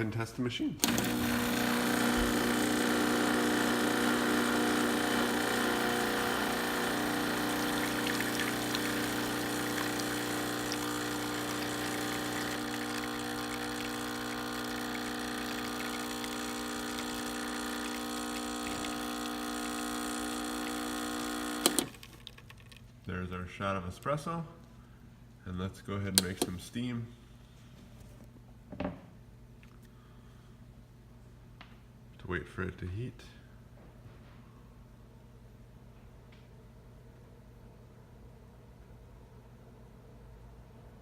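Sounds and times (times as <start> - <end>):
espresso machine pump humming: 0.8 - 22.3.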